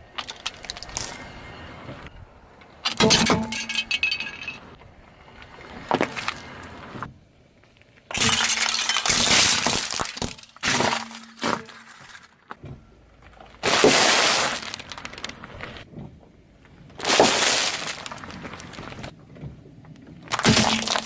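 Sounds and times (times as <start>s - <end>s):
tyre crushing brittle objects: 8.1s - 12.5s, 13.4s - 15.8s, 16.9s - 19.1s, 20.3s - 21.0s.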